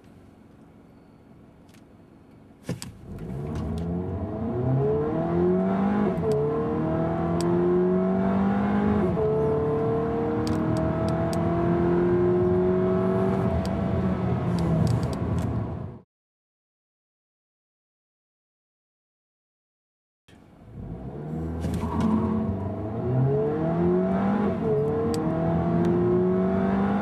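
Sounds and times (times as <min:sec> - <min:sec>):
car engine accelerating: 0:03.0 - 0:16.0, 0:20.7 - 0:27.0.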